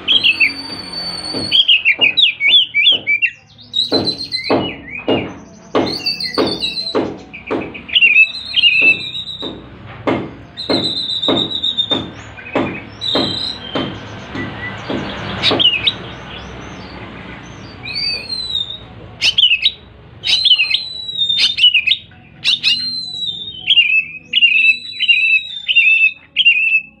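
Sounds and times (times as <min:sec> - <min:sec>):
bird singing whistled phrases: 0:00.0 - 0:09.6, 0:10.5 - 0:16.4, 0:17.8 - 0:27.0
regular knocking: 0:08.7 - 0:16.2.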